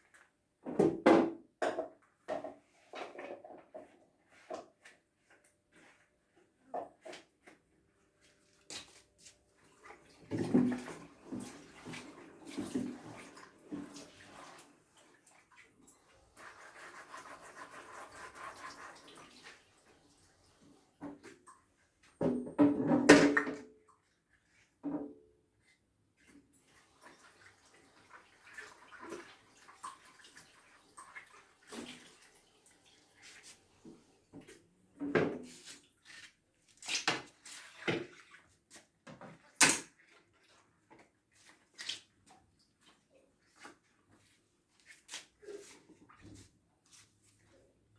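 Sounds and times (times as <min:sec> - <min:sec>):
kitchen items knocking and clattering: 0:00.6 - 0:04.0, 0:22.2 - 0:23.8, 0:39.1 - 0:40.0.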